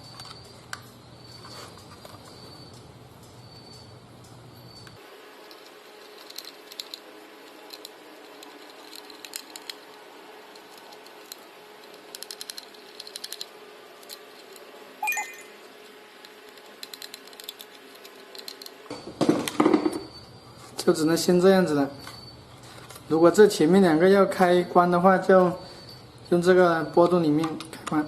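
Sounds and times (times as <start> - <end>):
small plastic parts clicking: 4.8 - 14.7, 16.2 - 18.8.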